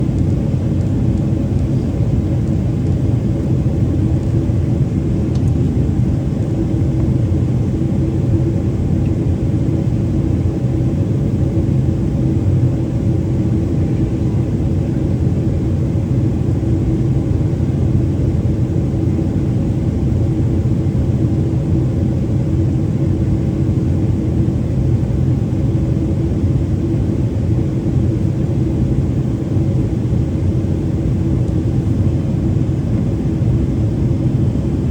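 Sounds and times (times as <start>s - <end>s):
airplane cabin rumble: 0.0s - 34.9s.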